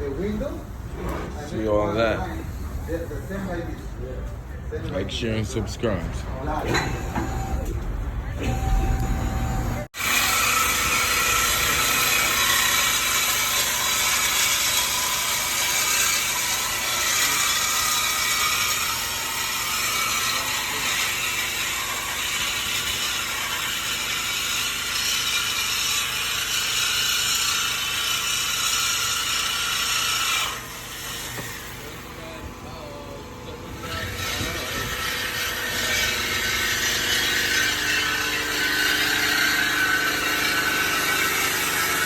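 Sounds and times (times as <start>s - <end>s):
power tool cutting metal: 6.4s - 7.8s, 8.4s - 33.0s, 33.6s - 42.0s.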